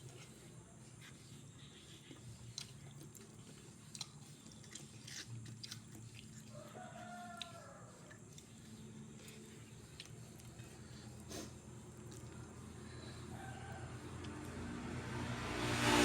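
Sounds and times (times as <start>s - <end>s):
person chewing crunchy food: 2.0s - 13.2s.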